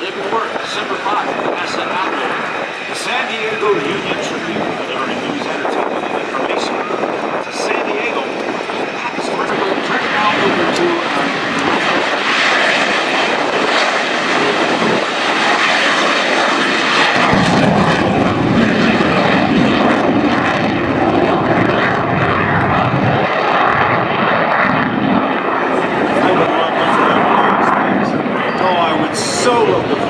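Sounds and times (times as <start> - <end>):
jet aircraft roaring overhead: 0.0 - 30.0.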